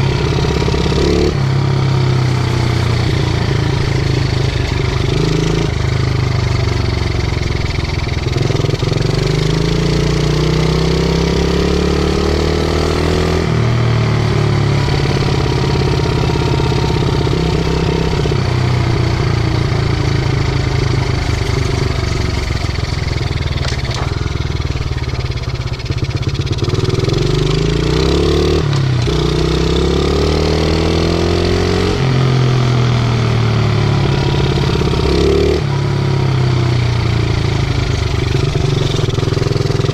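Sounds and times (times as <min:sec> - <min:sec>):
pit bike engine revving: 0:00.0 - 0:13.6, 0:14.6 - 0:36.2, 0:36.8 - 0:39.9.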